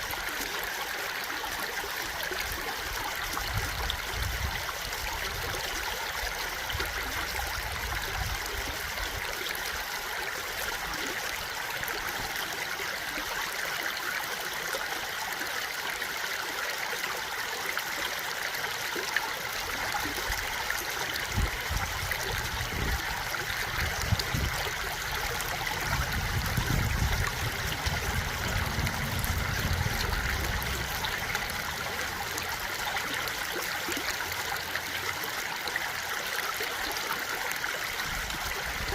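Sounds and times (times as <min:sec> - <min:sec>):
stream flowing over rocks: 0:00.0 - 0:38.9
low rumbles: 0:25.2 - 0:33.4.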